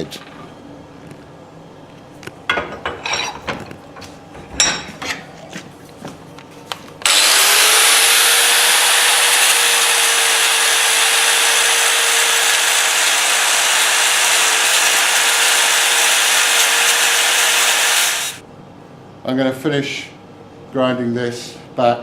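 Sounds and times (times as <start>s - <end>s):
grinder grinding steel: 7.0s - 18.4s.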